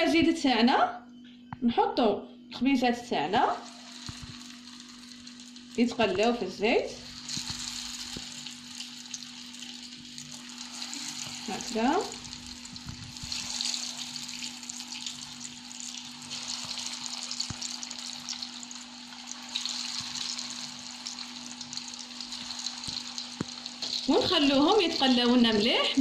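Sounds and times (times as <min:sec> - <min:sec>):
patties sizzling in hot oil: 0:03.5 - 0:26.0.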